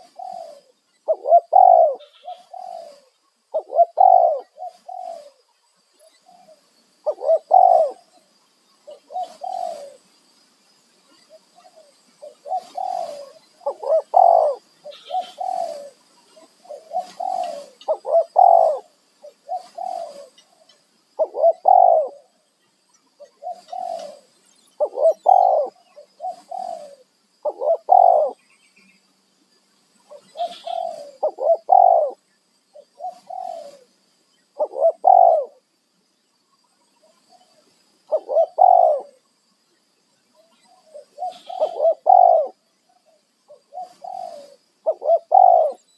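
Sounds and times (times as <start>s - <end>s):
doves cooing: 0.0s - 5.4s, 6.2s - 8.1s, 8.9s - 10.1s, 11.3s - 22.4s, 23.2s - 28.4s, 30.1s - 32.2s, 32.8s - 33.9s, 34.6s - 35.6s, 38.1s - 39.2s, 40.7s - 42.7s, 43.5s - 45.9s.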